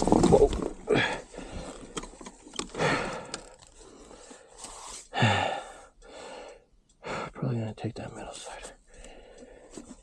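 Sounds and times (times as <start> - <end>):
person breathing hard: 0.9 - 2.0, 2.7 - 7.4, 8.7 - 10.0.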